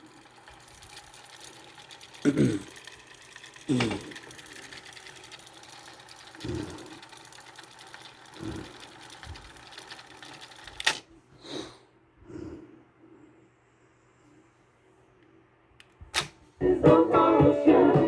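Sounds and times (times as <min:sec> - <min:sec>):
cassette tape transport whirring: 0:00.0 - 0:11.1
sharp mechanical click: 0:09.8 - 0:11.0, 0:15.8 - 0:16.4.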